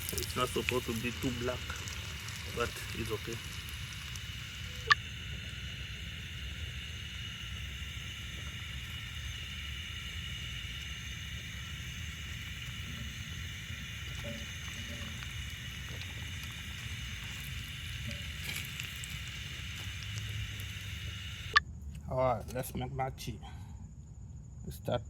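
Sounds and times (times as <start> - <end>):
food sizzling in hot oil: 0.0 - 21.6.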